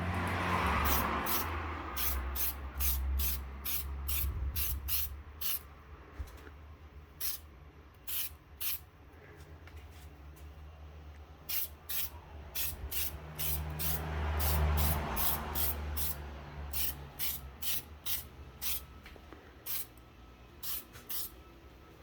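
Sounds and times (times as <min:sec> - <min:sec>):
aerosol can spraying hiss: 0:00.9 - 0:05.6, 0:11.5 - 0:18.8, 0:19.7 - 0:19.9, 0:20.6 - 0:21.3.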